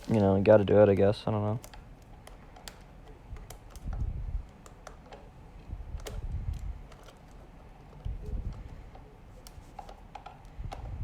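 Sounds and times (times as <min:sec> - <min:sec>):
laptop handling bumps: 0:00.0 - 0:11.0
screwdriver clicking on screws: 0:01.6 - 0:05.3.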